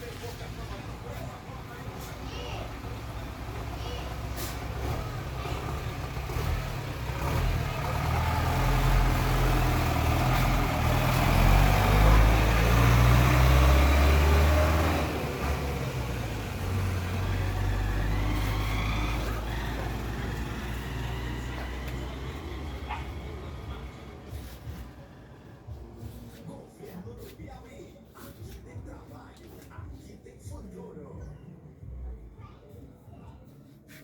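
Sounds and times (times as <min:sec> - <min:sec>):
vehicle engine running: 0:00.0 - 0:26.4.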